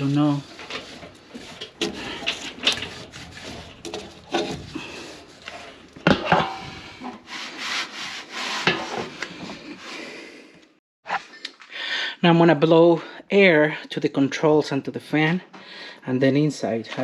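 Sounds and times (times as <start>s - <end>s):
hand scrubbing on fan: 0.0s - 10.2s.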